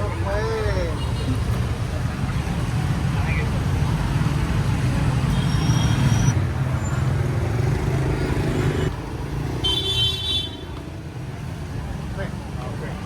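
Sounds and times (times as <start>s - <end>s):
vehicle engines running: 0.0s - 9.9s.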